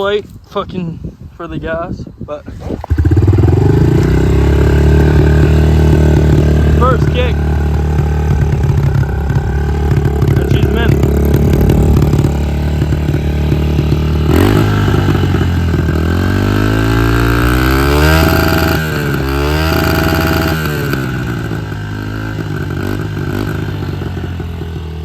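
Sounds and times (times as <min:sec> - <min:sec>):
motorcycle engine revving and idling: 0:02.5 - 0:25.0.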